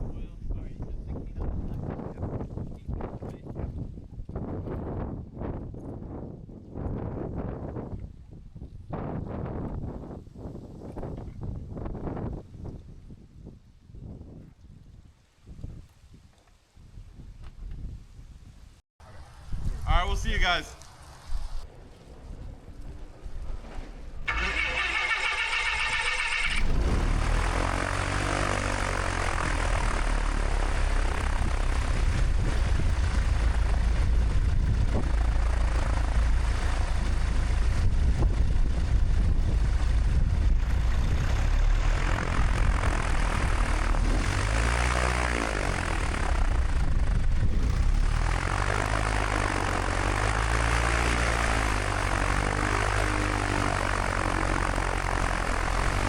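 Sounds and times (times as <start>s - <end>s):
propeller airplane engine running: 19.2s - 56.0s.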